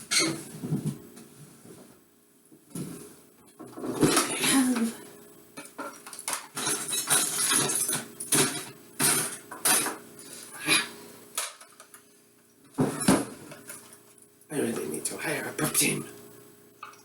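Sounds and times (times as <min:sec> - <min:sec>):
utensils and dishes clattering: 0:00.0 - 0:00.5, 0:03.6 - 0:04.9, 0:05.6 - 0:10.0.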